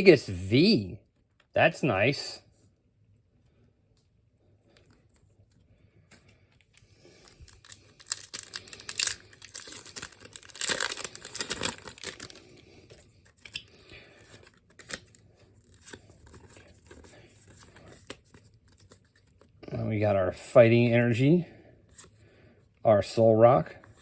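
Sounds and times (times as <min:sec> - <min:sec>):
foil wrapper tearing and crinkling: 0:07.2 - 0:19.4.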